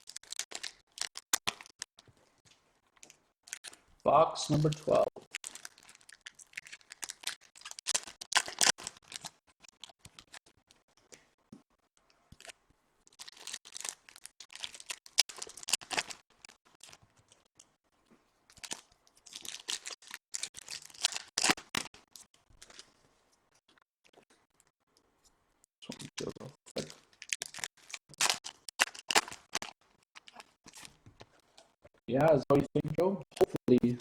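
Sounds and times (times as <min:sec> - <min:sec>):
packaging torn and crinkled: 0:00.0 - 0:02.1, 0:03.4 - 0:03.8, 0:04.5 - 0:10.6, 0:12.3 - 0:17.5, 0:18.5 - 0:22.9, 0:25.9 - 0:31.0.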